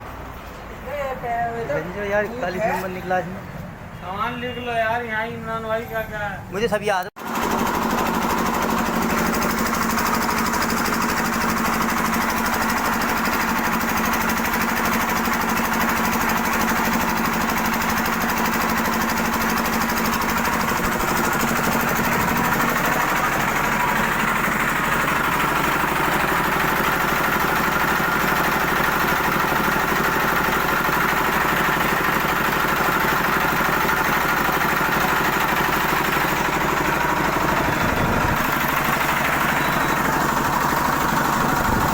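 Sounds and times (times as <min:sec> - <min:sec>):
engine running: 0:01.9 - 0:41.9.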